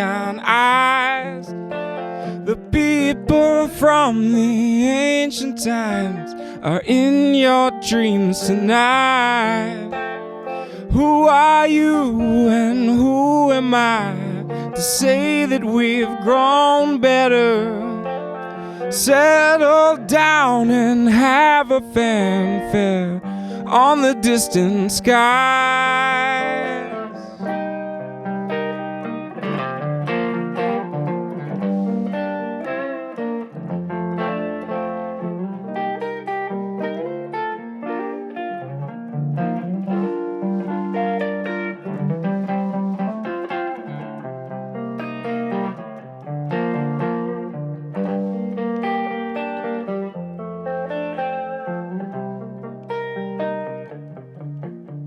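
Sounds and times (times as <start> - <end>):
guitar melodic line: 0.0 - 55.0.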